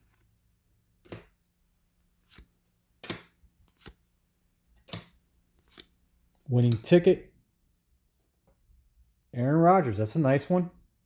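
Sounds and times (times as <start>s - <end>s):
cards being flicked: 1.0s - 1.4s, 2.2s - 4.0s, 4.8s - 6.0s, 6.6s - 7.0s.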